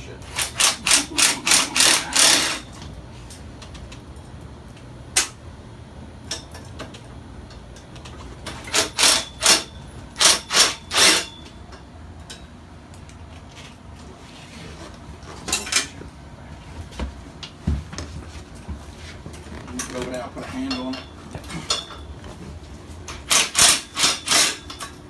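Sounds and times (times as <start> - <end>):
metal tools clanking: 0.4 - 2.8, 15.4 - 16.0, 19.7 - 22.2, 23.1 - 25.0.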